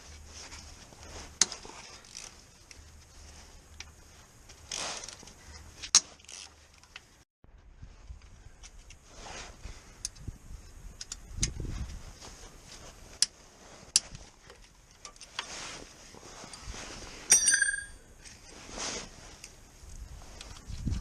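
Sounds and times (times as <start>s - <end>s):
metal tools clicking and knocking: 17.3s - 18.0s
ringing metallic clink: 17.3s - 18.1s.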